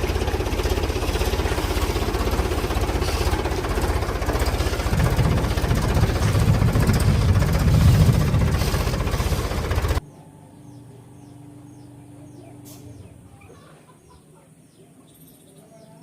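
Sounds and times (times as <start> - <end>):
vehicle engine knocking: 0.0 - 10.0.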